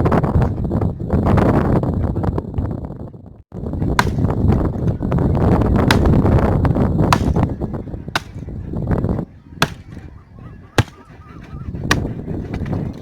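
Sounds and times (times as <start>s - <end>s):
axe chopping into tree: 4.0s - 4.4s, 5.8s - 6.4s, 7.1s - 7.5s, 8.2s - 8.4s, 9.6s - 9.9s.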